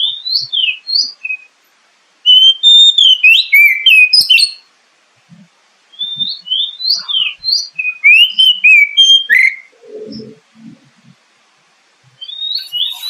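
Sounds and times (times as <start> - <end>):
bird whistling song: 0.0 - 1.6, 2.2 - 4.7, 5.9 - 10.4, 12.2 - 13.0
low rough bird sound: 5.2 - 13.0.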